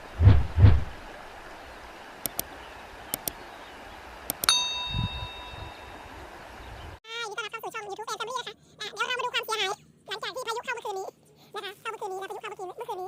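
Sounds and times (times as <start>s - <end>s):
low thuds: 0.0s - 1.2s
sharp clicks: 2.2s - 2.5s, 3.1s - 3.4s, 4.3s - 4.5s
bell-like ding: 4.5s - 6.2s.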